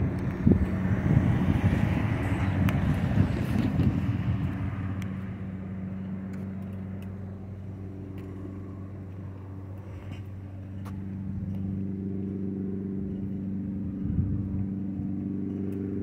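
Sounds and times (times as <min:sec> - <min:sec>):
passenger train rumbling: 0:00.0 - 0:06.3
steady low hum: 0:00.0 - 0:16.0.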